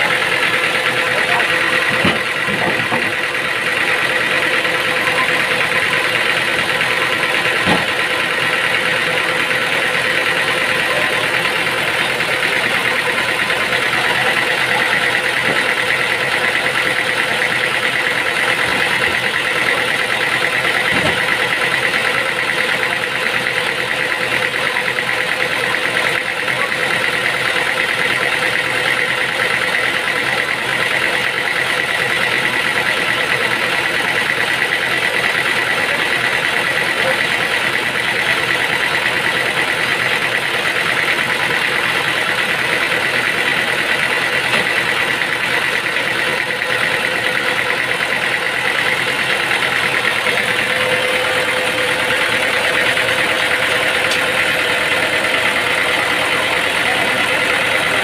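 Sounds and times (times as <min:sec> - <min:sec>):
sawmill machinery whining drone: 0:00.0 - 0:58.0.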